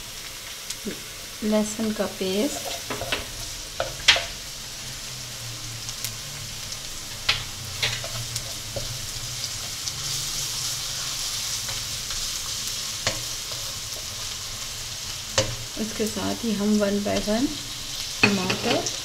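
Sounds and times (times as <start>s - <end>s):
onions sizzling in hot oil: 0.0s - 19.0s
spatula stirring: 2.4s - 4.4s.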